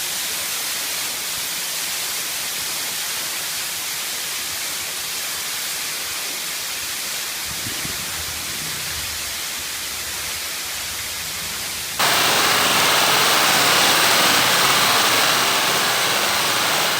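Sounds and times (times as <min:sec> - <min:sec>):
waterfall rushing water: 0:12.0 - 0:16.9.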